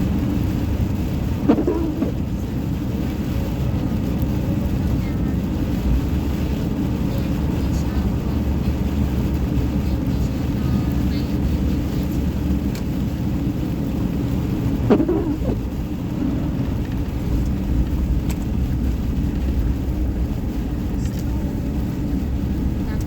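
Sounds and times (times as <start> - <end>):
road and engine noise in car: 0.0 - 23.0.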